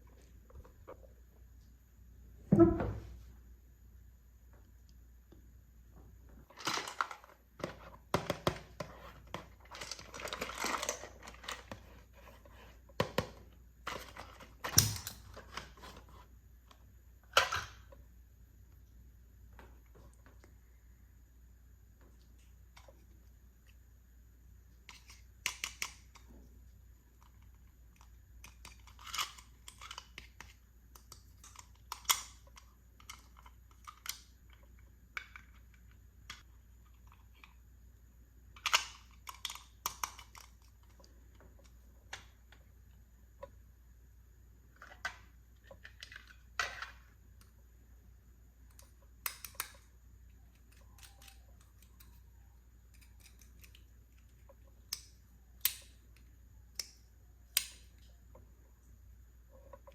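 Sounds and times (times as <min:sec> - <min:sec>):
plastic toy pieces clicking: 0:27.3 - 0:34.6, 0:38.6 - 0:40.9.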